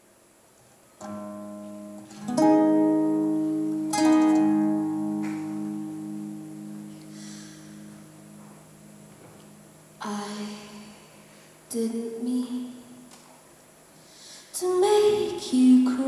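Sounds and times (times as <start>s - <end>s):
guitar strummed chords: 1.0s - 9.9s.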